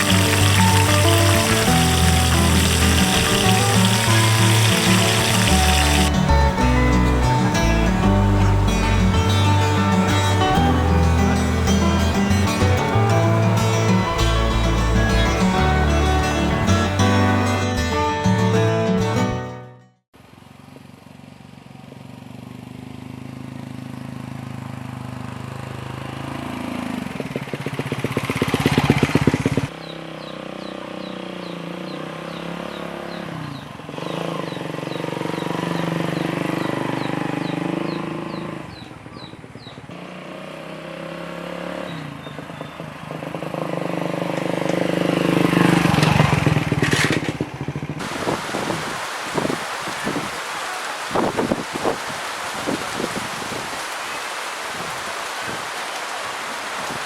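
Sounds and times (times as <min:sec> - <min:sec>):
vehicle engine running: 0:00.0 - 0:17.5.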